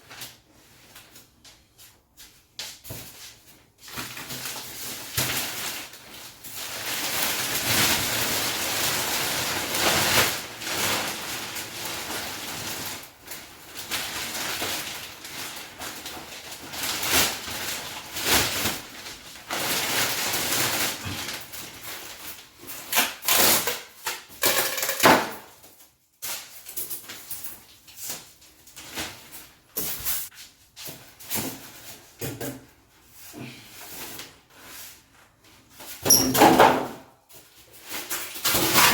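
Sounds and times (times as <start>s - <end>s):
packaging rustling and scraping: 2.9s - 32.2s, 37.3s - 38.9s.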